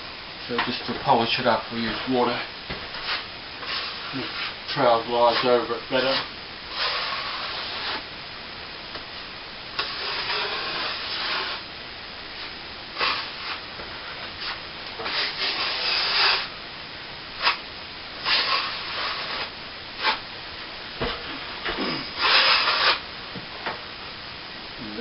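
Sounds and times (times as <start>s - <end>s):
trowel scraping plaster: 9.8s - 11.6s, 14.4s - 16.5s.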